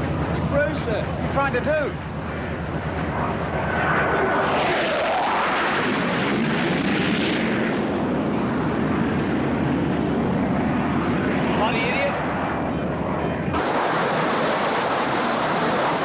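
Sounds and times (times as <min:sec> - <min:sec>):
boat engines droning: 0:00.0 - 0:04.4, 0:09.4 - 0:16.0
jet passing overhead: 0:00.0 - 0:16.0.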